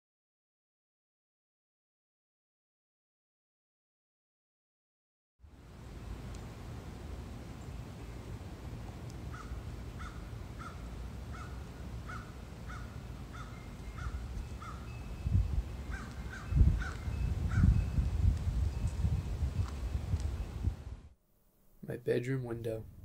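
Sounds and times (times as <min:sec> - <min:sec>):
bird calling: 0:09.3 - 0:17.8.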